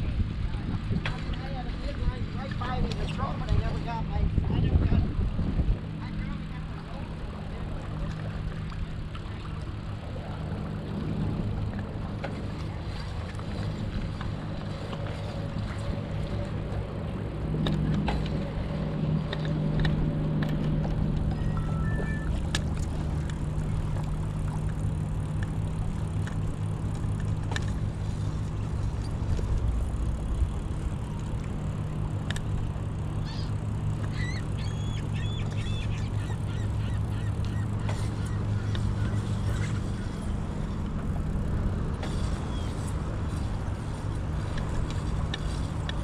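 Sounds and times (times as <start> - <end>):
steady low hum: 0.0 - 46.0
short honking bird calls: 33.2 - 40.2.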